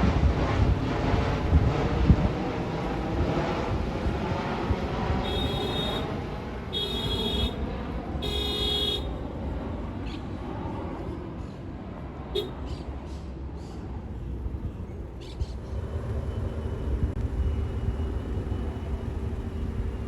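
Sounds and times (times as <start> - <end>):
jet airliner roaring overhead: 0.0 - 20.0
short horn-like beeps: 5.3 - 6.2, 6.8 - 7.6, 8.2 - 9.1.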